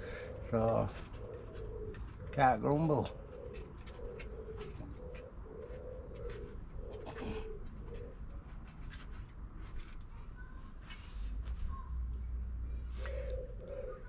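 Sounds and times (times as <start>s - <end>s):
pigeon cooing: 0.0s - 8.7s, 12.8s - 14.0s.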